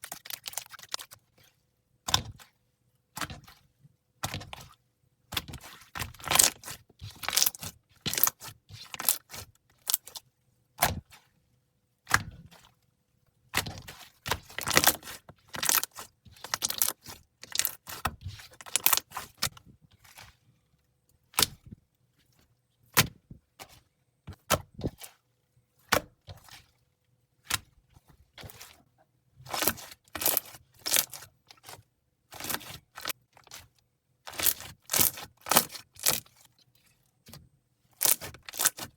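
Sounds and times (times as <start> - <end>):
slime crackling and popping: 34.3 - 36.2, 38.0 - 38.8.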